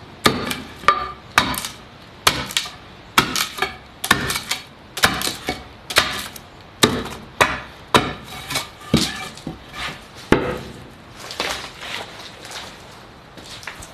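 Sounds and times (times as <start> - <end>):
tool striking wood: 0.2 - 9.6, 10.3 - 10.7
soft scraping: 8.3 - 10.3.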